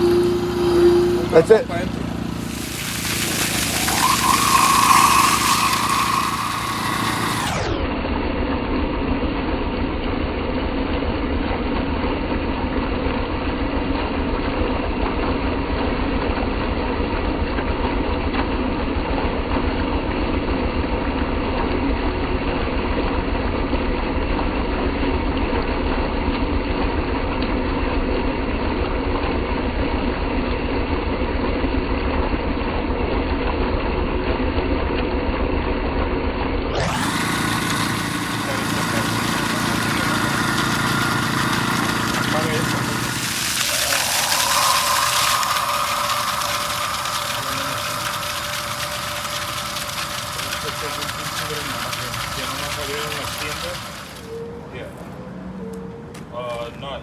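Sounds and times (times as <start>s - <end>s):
engine idling: 0.0s - 7.7s, 36.8s - 54.3s.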